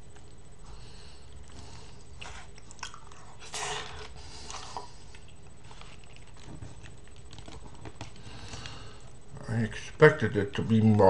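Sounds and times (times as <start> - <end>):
person chewing fish: 1.2 - 8.8.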